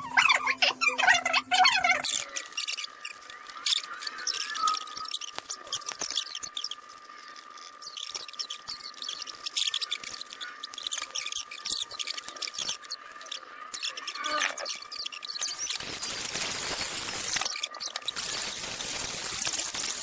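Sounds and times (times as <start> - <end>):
squeaky scratching on wood: 0.0 - 19.9
faint high whine: 0.0 - 20.0.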